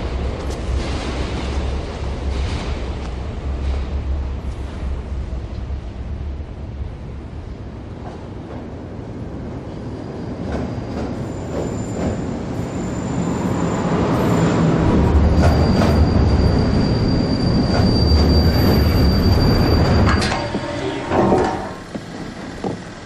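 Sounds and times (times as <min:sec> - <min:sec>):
electric train rumbling: 0:00.0 - 0:23.0
high-pitched wheel squeal: 0:15.2 - 0:21.9
rail clicks: 0:17.6 - 0:23.0.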